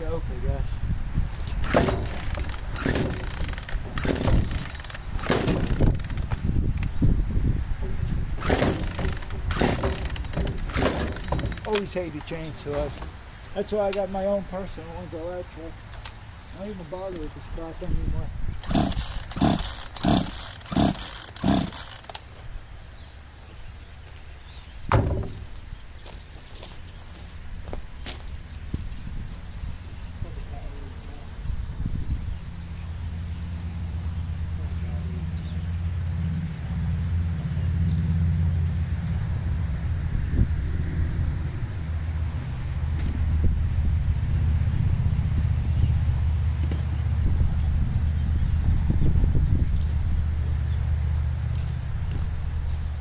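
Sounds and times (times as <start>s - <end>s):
chainsaw starter cord pulled: 1.4s - 6.5s, 8.4s - 13.1s, 18.6s - 22.3s
starter mechanism rattling: 1.4s - 6.5s, 8.4s - 13.1s, 18.6s - 22.3s.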